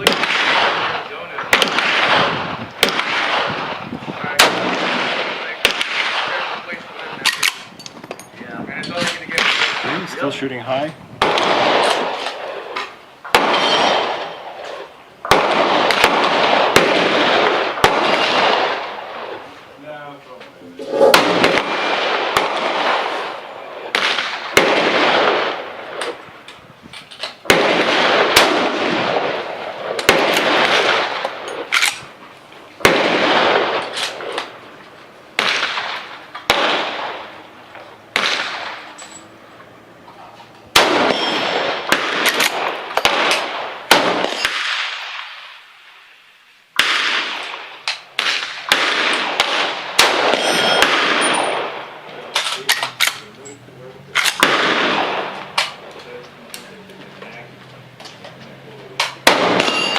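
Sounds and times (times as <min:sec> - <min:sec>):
rifle shots with echo: 0:00.0 - 0:07.7, 0:09.3 - 0:10.1, 0:11.2 - 0:19.5, 0:20.8 - 0:26.2, 0:27.4 - 0:32.1, 0:32.8 - 0:34.6, 0:35.4 - 0:38.9, 0:40.7 - 0:46.0, 0:46.8 - 0:53.2, 0:54.2 - 0:56.2, 0:59.0 - 0:59.9
distant gunshot cracks: 0:01.5 - 0:03.8, 0:04.4 - 0:06.4, 0:15.2 - 0:18.9, 0:20.9 - 0:26.2, 0:35.4 - 0:37.2, 0:38.1 - 0:38.9, 0:40.8 - 0:45.6, 0:46.8 - 0:51.8, 0:54.2 - 0:55.8, 0:59.0 - 0:59.9.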